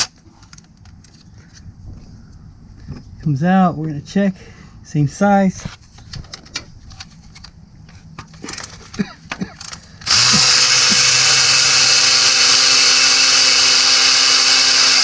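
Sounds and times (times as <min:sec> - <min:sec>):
electric ratchet spinning bolt: 0:09.6 - 0:15.0.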